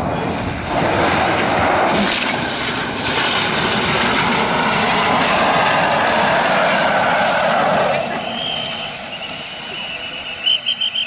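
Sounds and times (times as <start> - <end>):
airplane engines running: 0.0 - 11.0.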